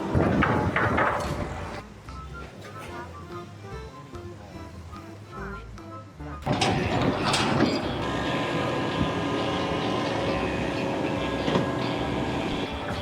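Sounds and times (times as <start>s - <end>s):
machine rumble and clatter: 0.0s - 1.8s, 6.4s - 13.0s.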